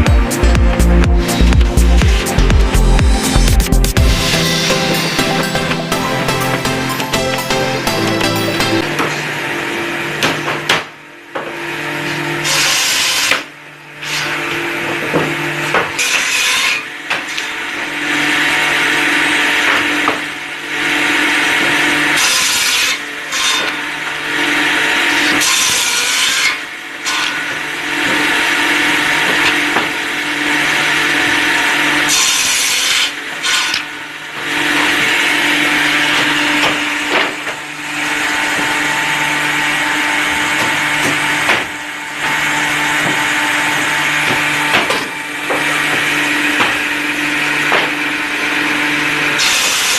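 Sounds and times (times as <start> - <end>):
rasping wood cutting: 12.4 - 13.4, 16.0 - 17.5, 21.6 - 23.9, 25.0 - 29.9, 31.8 - 49.9.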